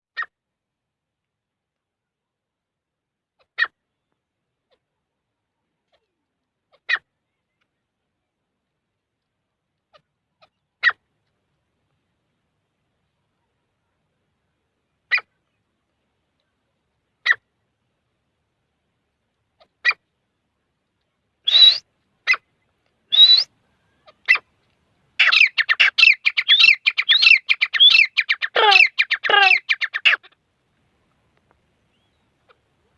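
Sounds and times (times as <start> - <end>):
francolin calling: 21.4 - 22.4, 23.1 - 24.5, 25.2 - 30.4.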